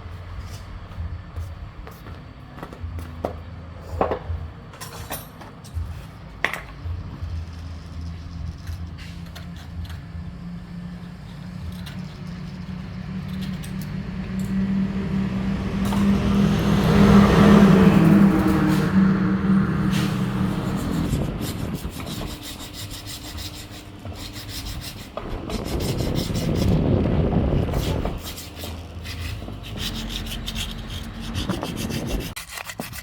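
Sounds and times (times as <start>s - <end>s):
motor drone: 6.9s - 32.4s.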